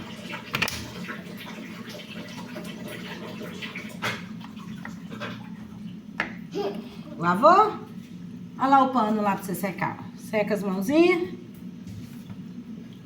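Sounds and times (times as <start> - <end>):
water running from tap: 0.0 - 6.0.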